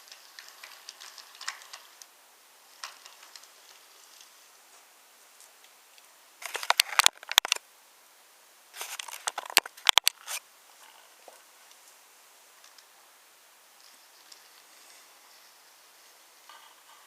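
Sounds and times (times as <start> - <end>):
wooden toy train pieces clicking: 0.0 - 2.1, 6.4 - 7.6, 8.8 - 10.4.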